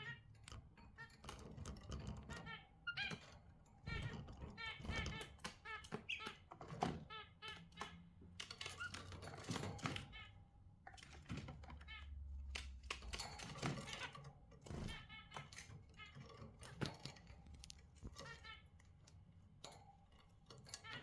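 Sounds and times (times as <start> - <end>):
budgerigars chattering: 3.9 - 6.5.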